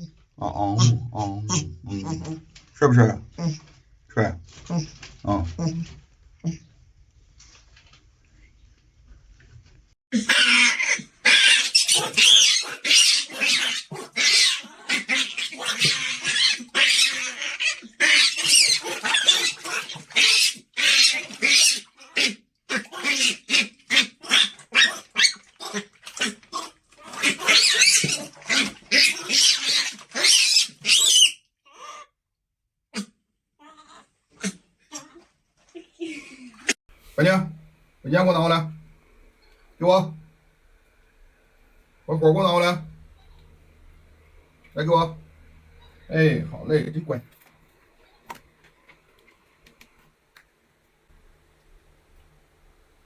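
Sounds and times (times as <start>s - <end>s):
monkey screeching: 10.1s - 32.1s.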